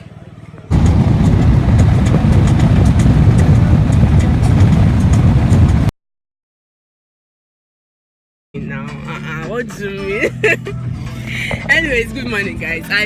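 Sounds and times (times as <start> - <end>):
car moving on road: 0.6 - 5.9.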